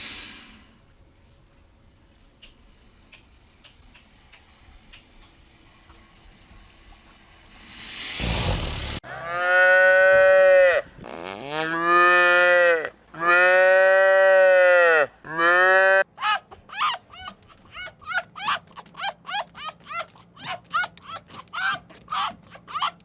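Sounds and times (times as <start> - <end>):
breathy rush of air: 7.5 - 9.0.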